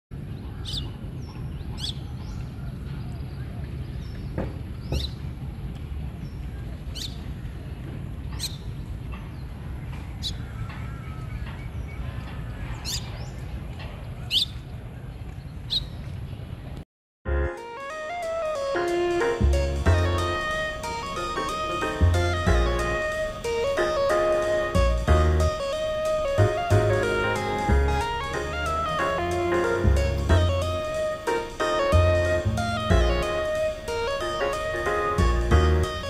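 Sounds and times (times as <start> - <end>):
bird chirping: 0.4 - 5.2, 8.3 - 13.5, 15.4 - 16.1.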